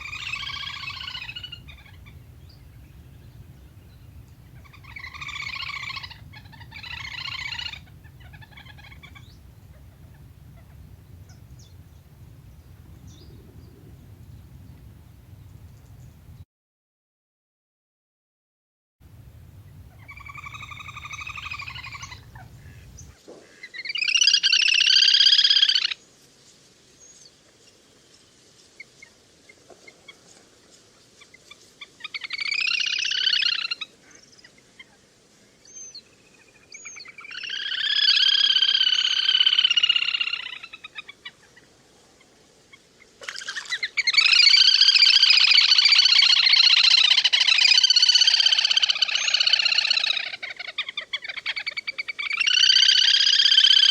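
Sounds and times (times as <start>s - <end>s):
grebe high trilling calls: 0.0s - 16.3s, 19.4s - 23.1s, 32.0s - 33.9s, 37.0s - 41.3s, 43.2s - 53.9s.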